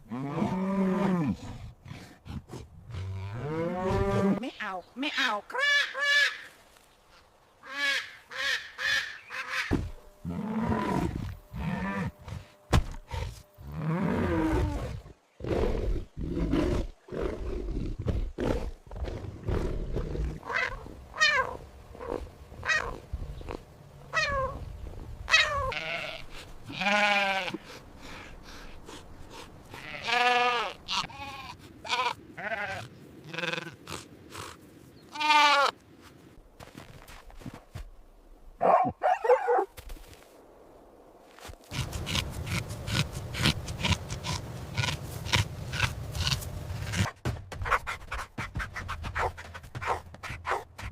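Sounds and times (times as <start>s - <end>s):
farm animals bleating: 25.3s - 27.6s, 29.7s - 34.0s, 35.1s - 35.8s.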